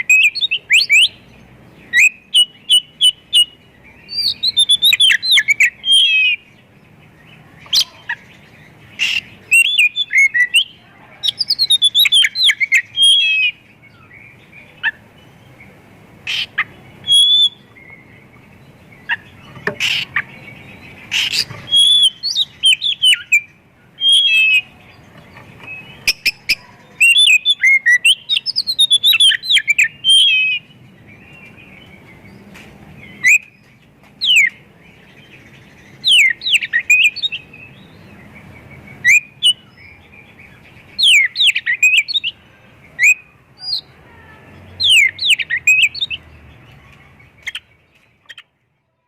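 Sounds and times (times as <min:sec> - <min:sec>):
songbird whistling and trilling: 0:00.0 - 0:06.6, 0:07.2 - 0:15.6, 0:16.3 - 0:32.4, 0:33.0 - 0:43.9, 0:44.8 - 0:46.2, 0:47.4 - 0:48.5.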